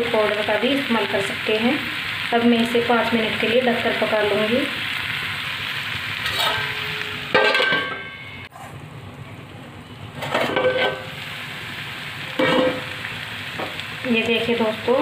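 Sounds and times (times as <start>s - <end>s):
vegetables sizzling in a pan: 0.0s - 15.0s
metal lid clanking on pan: 6.2s - 8.4s, 10.2s - 11.1s, 12.4s - 12.9s.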